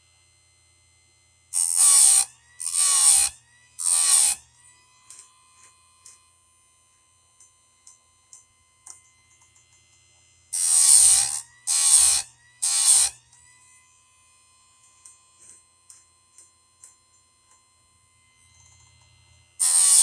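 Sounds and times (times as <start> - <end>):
chain grinder motor whining: 1.5 - 5.2, 10.5 - 13.9, 18.2 - 20.0
grinding wheel hissing on chain: 1.6 - 4.4, 10.6 - 13.2, 19.6 - 20.0.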